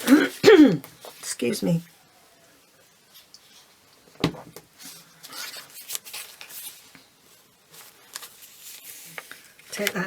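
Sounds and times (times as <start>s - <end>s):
paper rustling and scraping: 4.7s - 10.0s.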